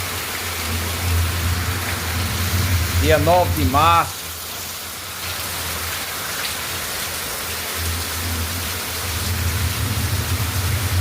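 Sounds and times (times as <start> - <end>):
heavy rain pouring: 0.0 - 11.0
low rumble: 1.0 - 3.9, 9.2 - 11.0.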